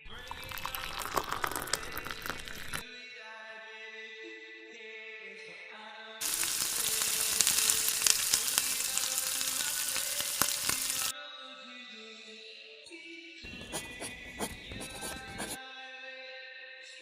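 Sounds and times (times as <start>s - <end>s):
fries sizzling in hot oil: 6.2s - 11.1s.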